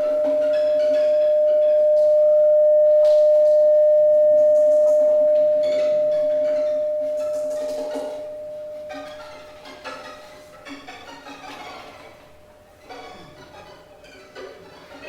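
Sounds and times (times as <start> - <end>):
held string pitch: 0.0 - 9.2
faint high notes: 0.0 - 10.0.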